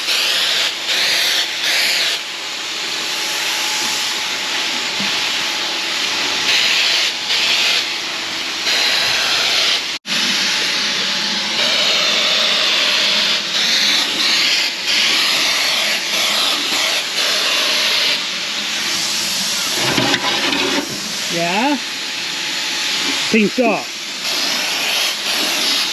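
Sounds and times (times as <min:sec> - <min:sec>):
paint sprayer hissing: 0:06.0 - 0:25.9.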